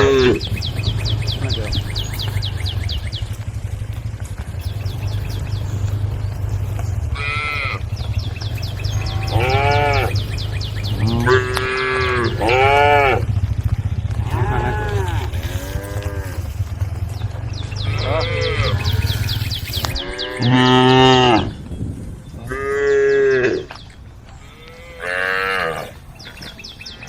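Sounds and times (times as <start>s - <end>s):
cattle mooing: 0.0s - 3.0s, 7.0s - 13.4s, 14.1s - 17.0s, 17.7s - 21.6s, 22.4s - 23.7s, 24.4s - 26.0s
low rumble: 0.0s - 25.0s.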